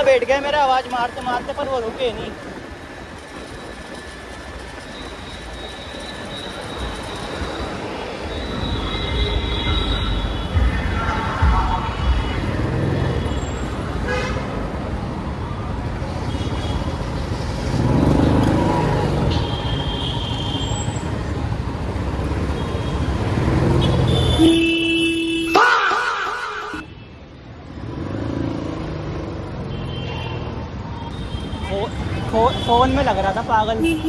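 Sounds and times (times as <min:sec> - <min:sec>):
road traffic: 0:00.0 - 0:34.0
vehicle horns: 0:08.4 - 0:14.7, 0:19.1 - 0:21.1, 0:22.0 - 0:25.7, 0:31.1 - 0:34.0.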